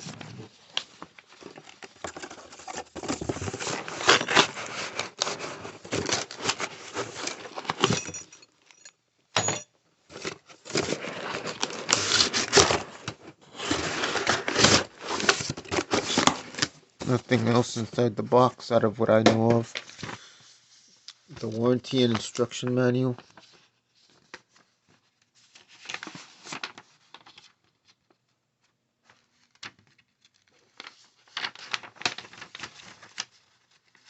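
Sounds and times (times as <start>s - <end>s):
packaging rustling and crinkling: 0.0s - 8.2s, 10.1s - 17.8s, 23.2s - 28.2s, 29.0s - 34.0s.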